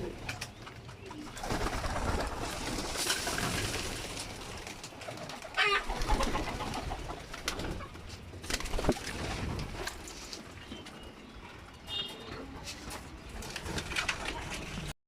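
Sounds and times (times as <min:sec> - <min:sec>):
pigeons cooing: 0:00.0 - 0:09.0.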